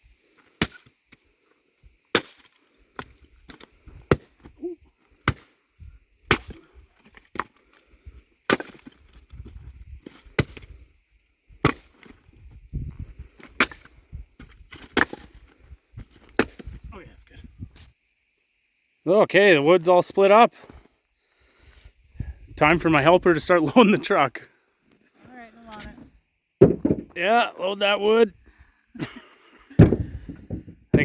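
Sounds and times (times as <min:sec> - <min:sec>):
axe chopping wood: 0:00.6 - 0:00.9, 0:02.1 - 0:04.5, 0:05.2 - 0:05.5, 0:06.3 - 0:06.7, 0:08.5 - 0:09.0, 0:10.4 - 0:10.7, 0:11.6 - 0:12.1, 0:13.4 - 0:13.9, 0:14.7 - 0:15.4, 0:16.3 - 0:16.8, 0:26.6 - 0:27.2, 0:29.8 - 0:31.0.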